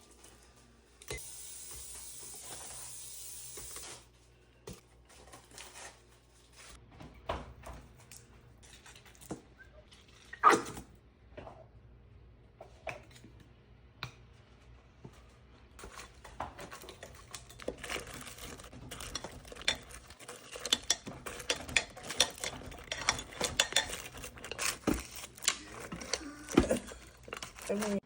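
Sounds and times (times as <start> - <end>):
dishes and utensils clattering: 15.8 - 28.0.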